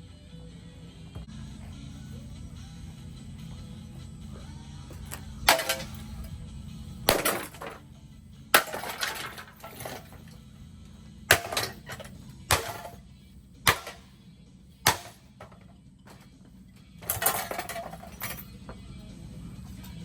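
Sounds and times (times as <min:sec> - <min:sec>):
parts rattling: 0:04.9 - 0:10.5, 0:11.3 - 0:14.2, 0:14.8 - 0:18.8.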